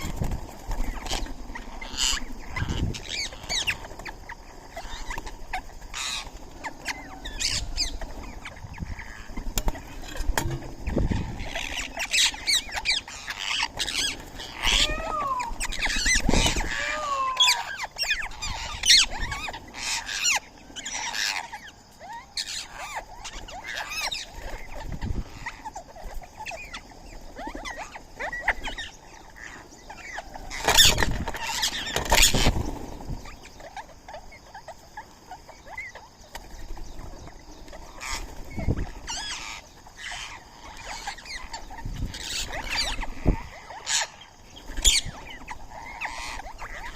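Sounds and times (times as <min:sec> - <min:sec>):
falling whistled bird calls: 0:00.0 - 0:34.7
birds chirping and calling: 0:00.0 - 0:46.9.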